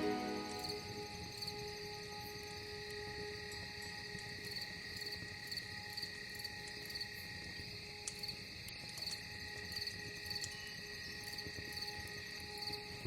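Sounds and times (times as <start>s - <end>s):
soft steady drone: 0.0s - 4.3s
campfire crackles: 0.0s - 13.0s
cricket chirping: 0.0s - 13.0s.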